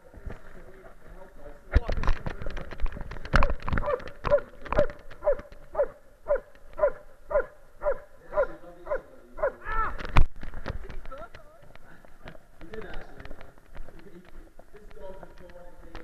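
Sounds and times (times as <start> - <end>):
dog barking: 3.8 - 9.6.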